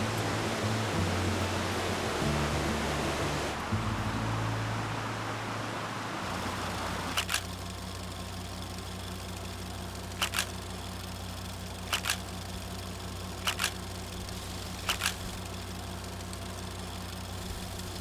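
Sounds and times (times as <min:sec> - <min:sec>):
steady low hum: 0:00.0 - 0:07.2
sharp double clicks: 0:07.1 - 0:07.5, 0:10.1 - 0:10.6, 0:11.9 - 0:12.4, 0:13.4 - 0:13.9, 0:14.8 - 0:15.4.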